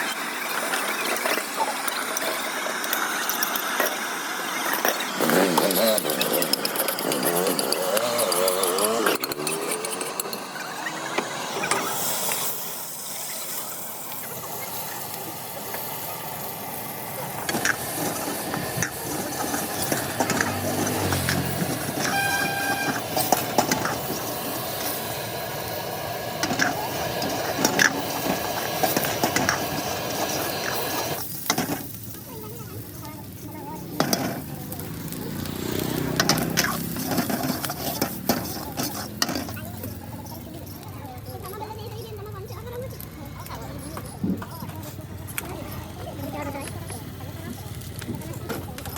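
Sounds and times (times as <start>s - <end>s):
clicks and clatter: 4.6s - 10.6s
indistinct voices: 4.6s - 12.6s, 32.1s - 48.9s
passing vehicles: 17.6s - 26.0s, 33.9s - 40.8s
horn-like tone: 22.0s - 23.2s.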